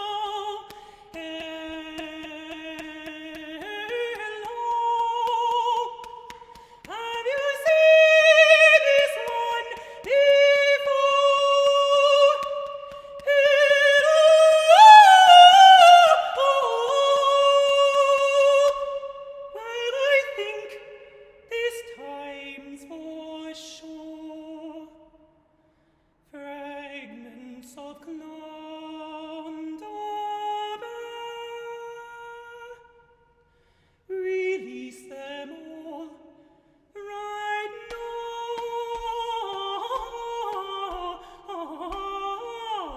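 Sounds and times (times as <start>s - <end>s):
solo voice singing: 0.0s - 25.1s, 34.1s - 36.4s, 37.0s - 42.9s.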